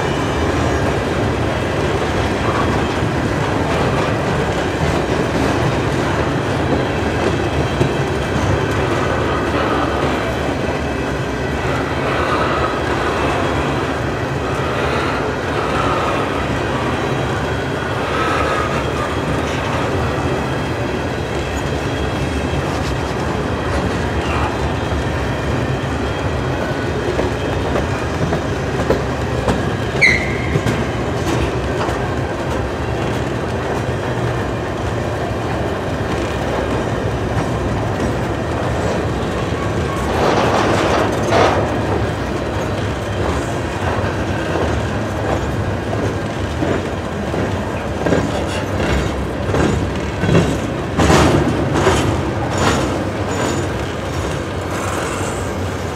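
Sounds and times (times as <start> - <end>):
freight train rumbling past: 0.0 - 55.9
loud train clatter: 0.0 - 55.9
wheels clacking over rail joints: 18.1 - 55.9
high wheel squeal: 29.9 - 30.9.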